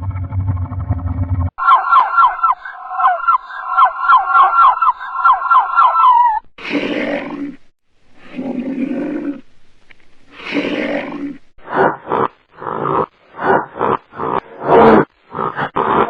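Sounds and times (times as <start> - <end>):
big cat roaring and grunting: 8.2 - 9.4, 10.4 - 16.0.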